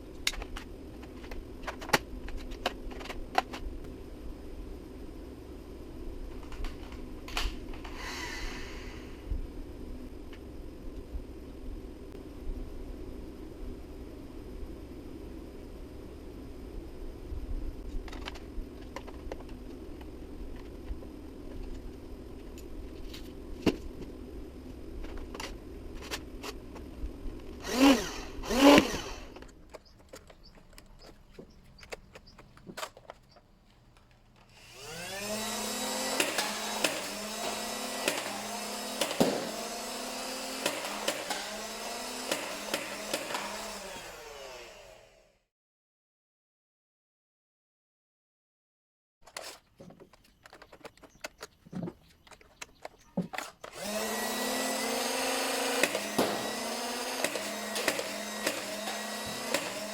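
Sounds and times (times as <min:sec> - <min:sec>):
flywheel motors whining: 0:27.6 - 0:33.4, 0:34.4 - 0:45.2, 0:52.2 - 0:59.9
sharp clicks: 0:28.7 - 0:34.5.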